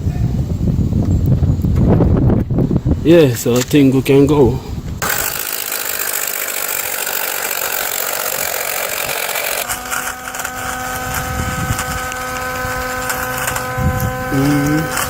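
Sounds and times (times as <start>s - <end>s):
tyre inflator compressor buzzing: 4.9s - 15.0s.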